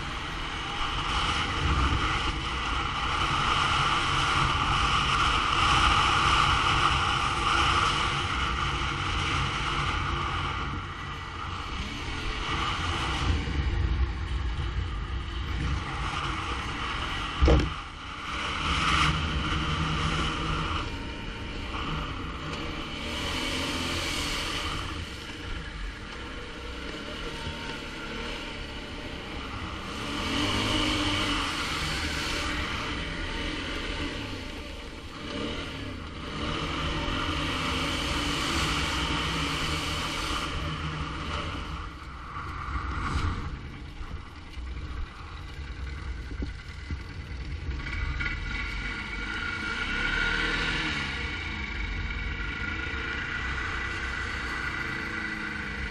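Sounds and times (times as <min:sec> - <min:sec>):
quad bike engine running: 0:00.0 - 0:55.9
loud thump: 0:17.4 - 0:17.8.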